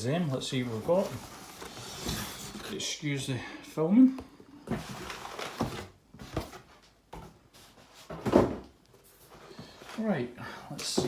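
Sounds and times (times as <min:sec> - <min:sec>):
packaging rustling and scraping: 0:00.3 - 0:02.9, 0:04.7 - 0:06.8.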